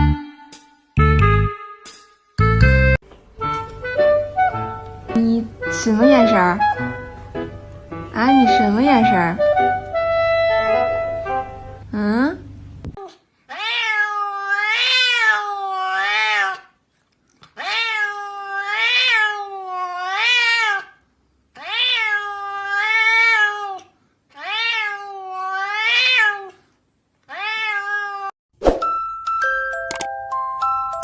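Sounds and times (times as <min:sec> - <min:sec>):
cat meowing: 0:13.0 - 0:16.7, 0:17.6 - 0:21.0, 0:21.6 - 0:26.6, 0:27.3 - 0:28.4.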